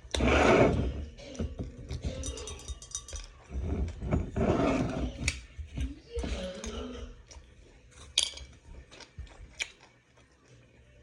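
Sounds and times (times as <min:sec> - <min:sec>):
person chewing fried food: 0:08.7 - 0:11.0.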